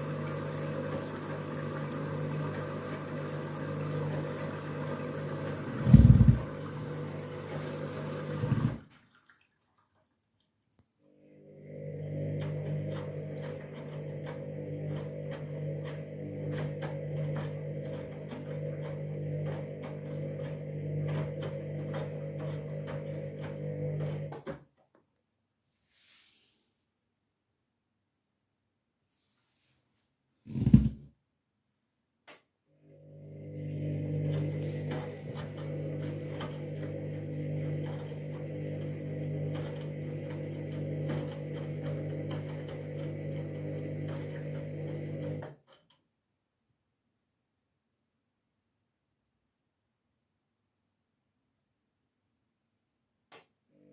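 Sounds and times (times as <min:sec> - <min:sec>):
washing machine humming: 0:00.0 - 0:10.0, 0:11.1 - 0:24.6, 0:32.8 - 0:45.5.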